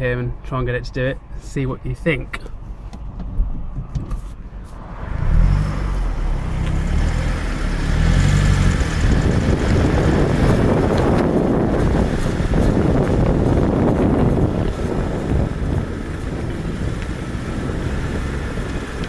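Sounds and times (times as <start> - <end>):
car driving rushing noise: 2.6 - 19.0
car engine accelerating: 4.4 - 19.0.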